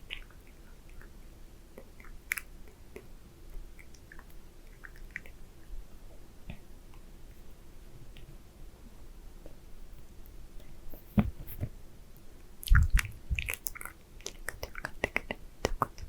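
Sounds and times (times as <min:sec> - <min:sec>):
lip smacks: 0:00.0 - 0:01.1, 0:03.8 - 0:05.4, 0:12.6 - 0:16.0
tongue clicks: 0:12.6 - 0:16.0.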